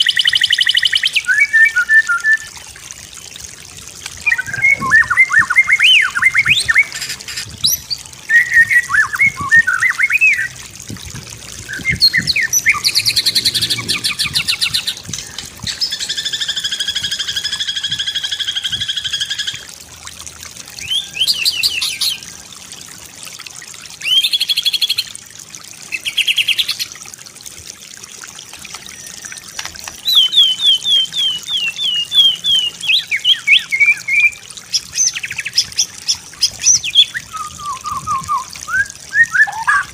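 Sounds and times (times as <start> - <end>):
songbird singing varied song: 0.0 - 2.5, 4.2 - 10.6, 11.6 - 19.6, 30.0 - 39.9.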